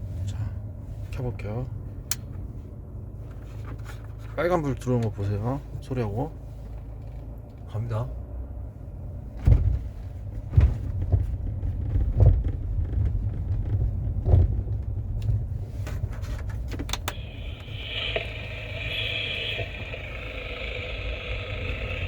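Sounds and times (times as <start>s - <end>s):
car rumbling over rough road: 6.5s - 22.0s.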